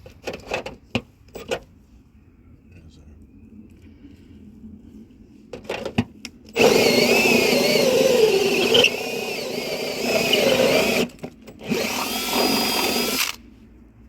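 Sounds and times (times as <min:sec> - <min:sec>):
power drill boring through wood: 0:06.6 - 0:13.4.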